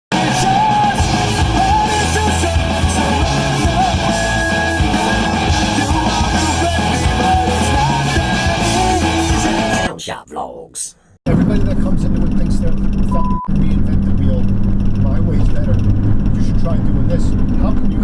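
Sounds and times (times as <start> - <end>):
rock song with singing: 0.1 - 9.9.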